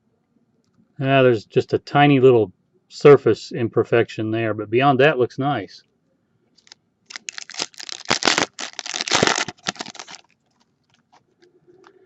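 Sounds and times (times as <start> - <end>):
foil wrapper crinkling and tearing: 6.6 - 11.2.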